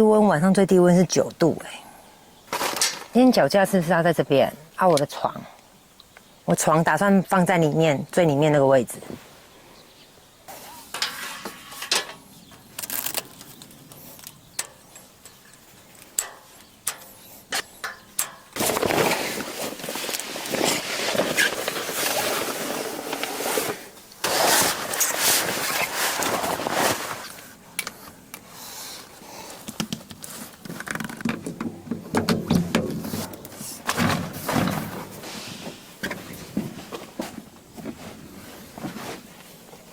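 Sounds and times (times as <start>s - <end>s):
fabric rustling: 18.6s - 27.5s.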